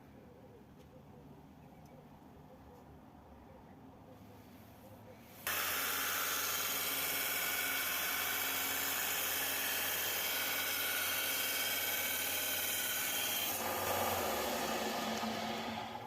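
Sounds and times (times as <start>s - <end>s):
electric power tool whining: 5.5s - 16.0s.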